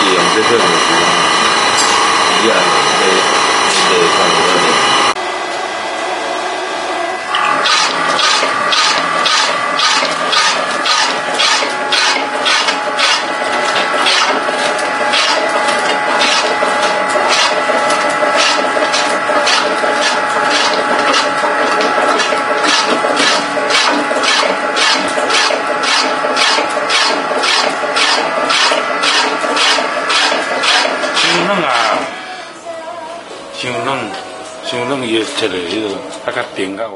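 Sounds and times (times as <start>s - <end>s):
slicer motor hum: 0.0s - 32.4s
rasping cutting strokes: 7.5s - 32.1s.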